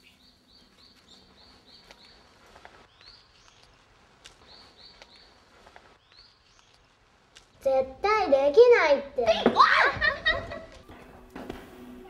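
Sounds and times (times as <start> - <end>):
small bird chirping: 0.0 - 7.0.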